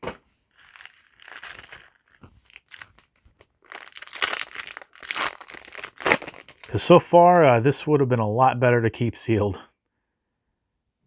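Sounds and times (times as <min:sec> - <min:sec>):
foil wrapper crinkling and tearing: 0:00.6 - 0:06.9.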